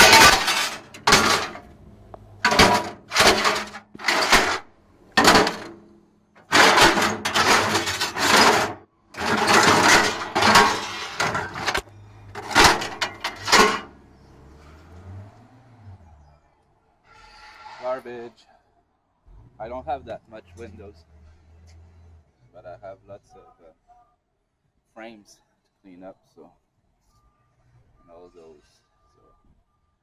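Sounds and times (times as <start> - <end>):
junk crashing into a container: 0.0 - 14.0.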